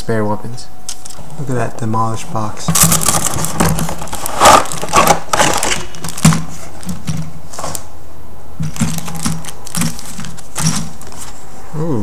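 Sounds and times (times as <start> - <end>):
cardboard box rustling: 2.2 - 7.9, 8.6 - 11.4.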